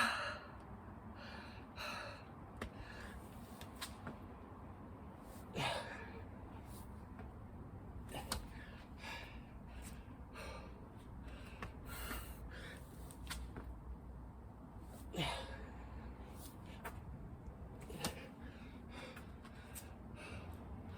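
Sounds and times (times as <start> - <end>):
man breathing hard: 0.0 - 3.4, 5.4 - 6.4, 8.1 - 13.1, 15.0 - 16.9, 17.8 - 20.9.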